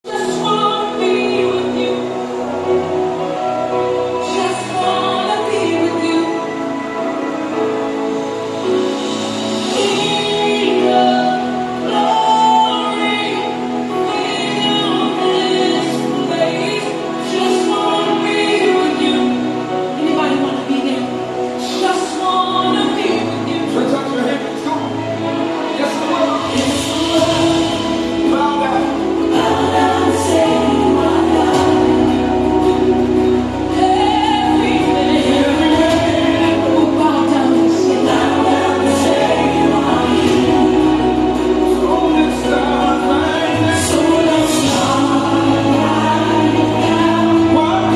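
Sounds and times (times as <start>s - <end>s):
choir singing gospel: 0.0s - 47.9s
dance music with held notes: 24.4s - 47.9s.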